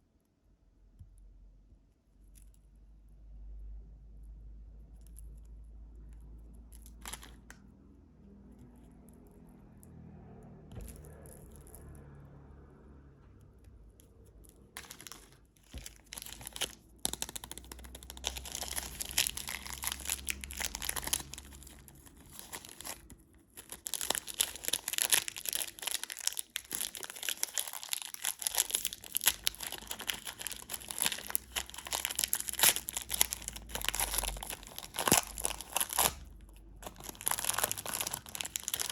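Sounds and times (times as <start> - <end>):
candy wrapper crinkling: 6.5 - 7.6, 14.1 - 38.9.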